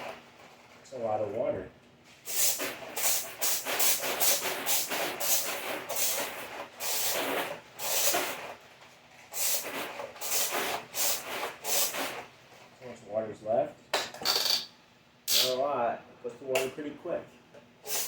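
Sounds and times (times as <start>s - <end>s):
water blaster hissing spurts: 2.2s - 8.6s, 9.3s - 12.3s, 15.3s - 15.6s.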